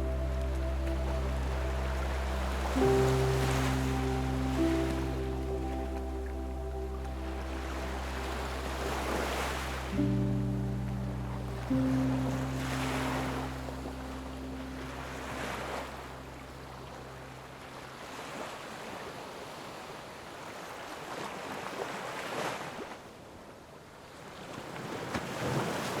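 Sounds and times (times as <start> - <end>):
low music drone: 0.0 - 18.0.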